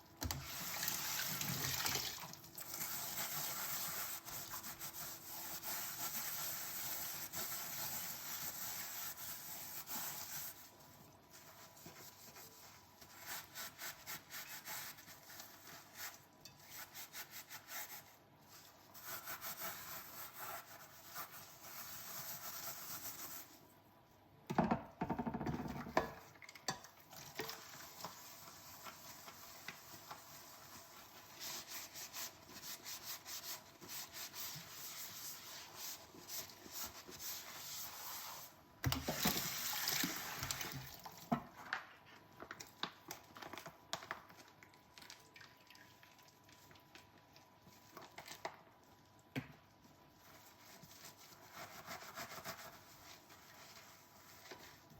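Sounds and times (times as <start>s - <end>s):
sponge scrubbing dishes: 0.2s - 23.6s, 26.8s - 40.9s, 49.8s - 54.9s
water running in sink: 0.4s - 4.8s.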